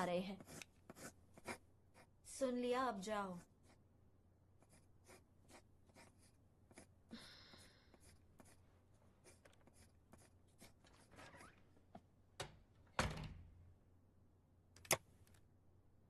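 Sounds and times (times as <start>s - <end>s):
pencil scratching on paper: 0.0s - 2.2s, 3.3s - 3.8s, 4.6s - 8.6s, 9.2s - 11.5s.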